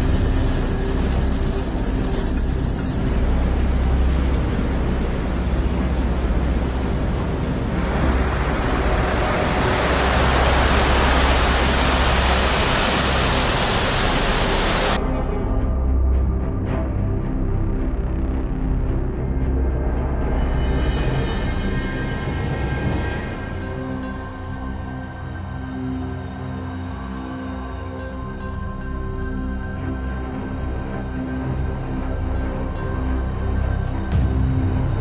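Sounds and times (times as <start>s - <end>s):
rain: 0.0s - 15.0s
torrential water rushing: 0.0s - 15.0s, 22.2s - 25.5s
deep rumble: 0.0s - 25.2s.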